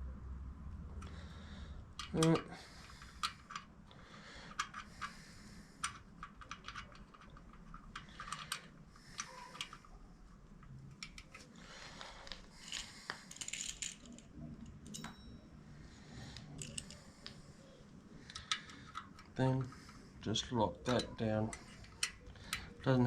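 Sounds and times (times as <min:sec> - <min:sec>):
allen key clicking on metal screws: 0:02.0 - 0:03.7, 0:04.4 - 0:10.0, 0:10.6 - 0:11.6, 0:12.2 - 0:15.4, 0:16.3 - 0:17.4, 0:18.2 - 0:20.0, 0:20.8 - 0:23.0.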